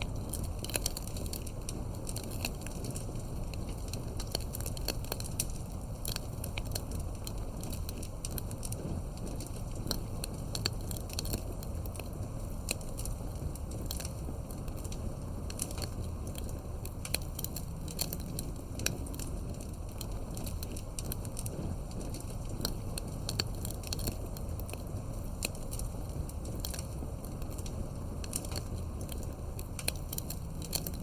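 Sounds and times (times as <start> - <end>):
campfire flames rumbling: 0.0 - 31.0
wood crackling and popping: 0.0 - 31.0.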